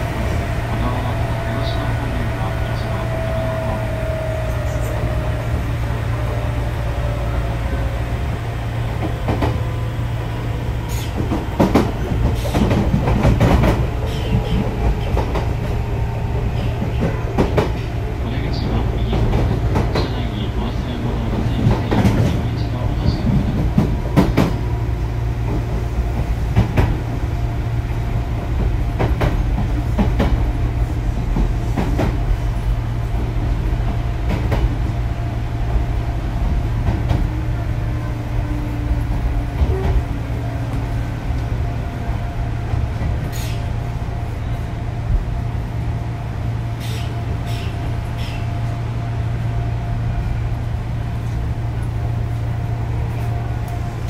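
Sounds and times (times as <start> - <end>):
train low hum: 0.0 - 54.0.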